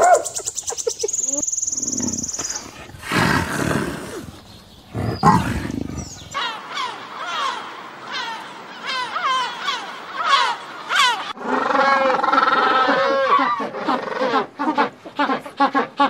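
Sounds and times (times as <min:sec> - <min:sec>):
big cat growling: 0:01.9 - 0:06.4
gulls crying: 0:02.0 - 0:15.0.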